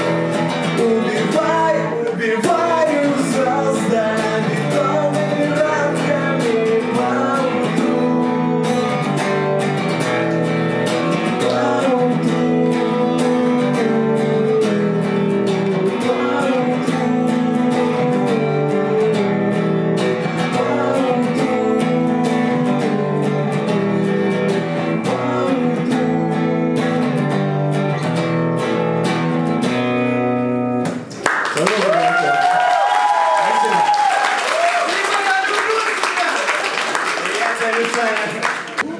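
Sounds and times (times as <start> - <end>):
acoustic guitar strumming chords: 0.0 - 31.2.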